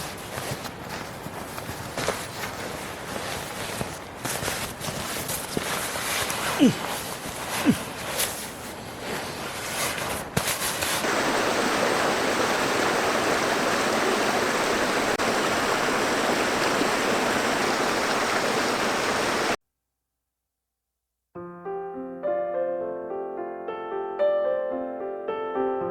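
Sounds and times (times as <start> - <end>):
stream rushing over rocks: 10.7 - 19.6.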